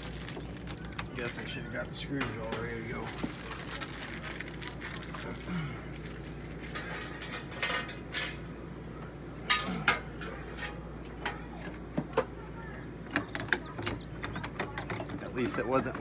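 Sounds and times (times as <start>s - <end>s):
small metal parts clinking: 2.5s - 8.5s, 9.4s - 11.4s.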